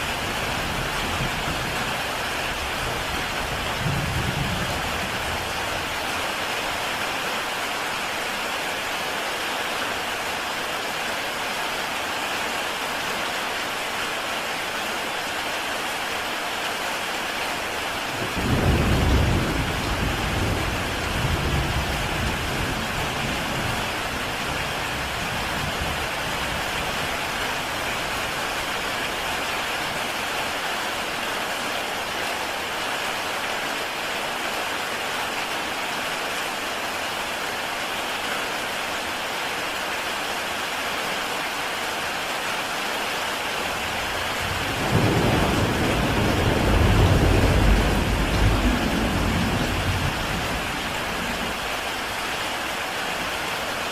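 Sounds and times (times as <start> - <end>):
heavy rain on a tile roof: 0.0 - 53.9
low thunder rumbling: 2.9 - 5.7, 18.2 - 26.7, 43.8 - 51.8.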